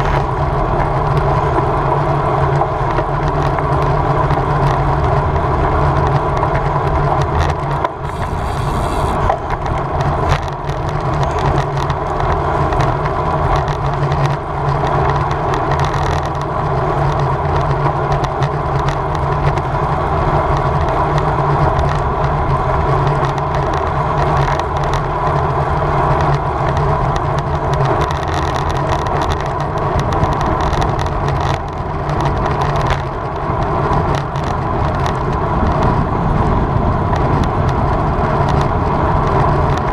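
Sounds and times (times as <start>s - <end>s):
bike tyre road noise: 0.0s - 39.9s
wind over microphone: 0.0s - 39.9s
bike knocks and rattles: 5.8s - 19.7s.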